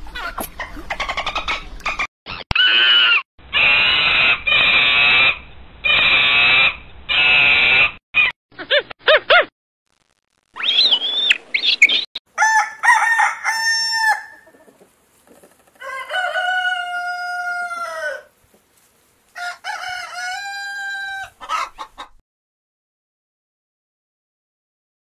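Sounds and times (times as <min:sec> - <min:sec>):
rooster crowing: 0:12.3 - 0:14.5, 0:15.8 - 0:18.3, 0:19.4 - 0:21.7.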